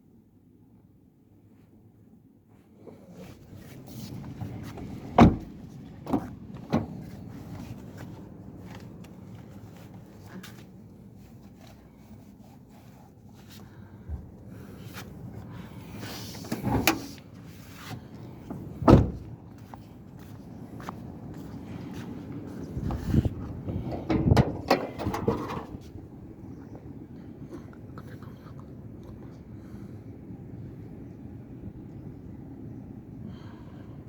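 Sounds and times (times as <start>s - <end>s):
car engine idling: 21.2s - 27.0s
sharp knocks and clunks: 23.7s - 25.9s.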